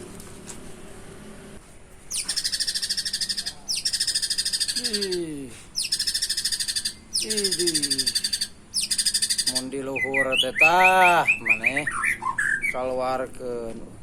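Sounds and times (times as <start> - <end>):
bird rattling trills: 2.1 - 12.8
low falling bird notes: 2.1 - 13.1.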